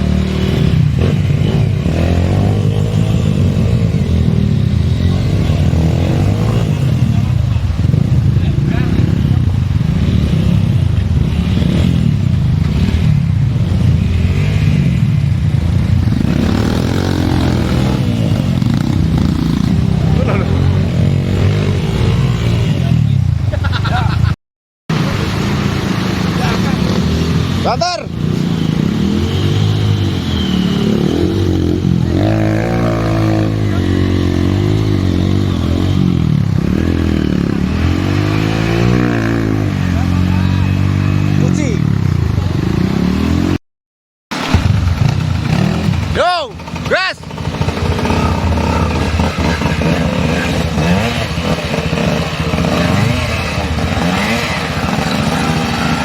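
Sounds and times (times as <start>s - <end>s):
motorcycle engine revving: 0.0s - 24.0s, 24.9s - 43.6s, 44.3s - 56.0s
dirt bike engine running: 44.3s - 56.0s.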